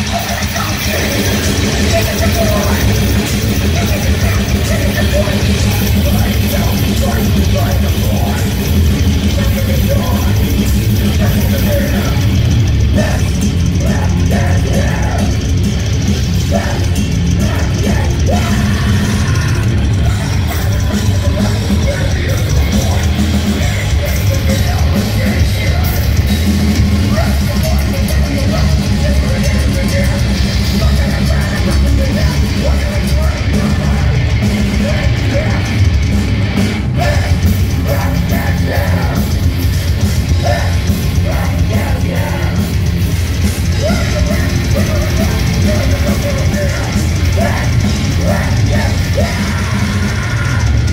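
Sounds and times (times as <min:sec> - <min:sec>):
live heavy metal band playing: 0:00.0 - 0:50.9.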